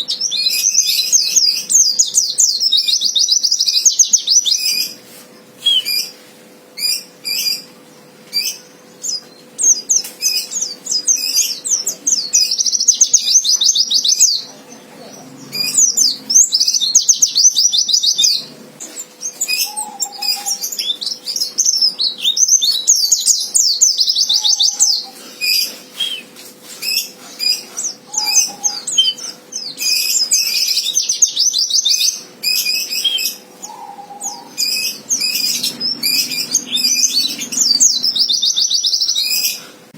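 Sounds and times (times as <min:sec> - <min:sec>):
bird high trilling song: 0:00.0 - 0:05.0, 0:05.6 - 0:06.2, 0:06.8 - 0:39.7
sharp bird chirps: 0:05.6 - 0:06.1.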